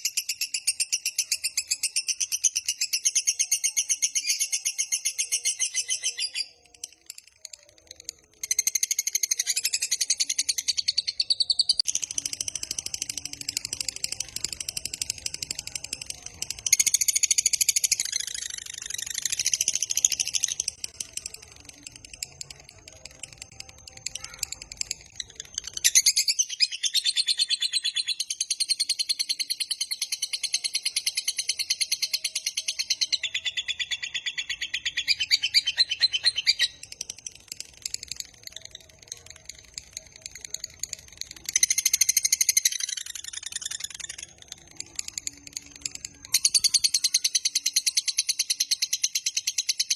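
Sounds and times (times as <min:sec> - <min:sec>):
lovebird chattering trill: 0:23.4 - 0:49.9.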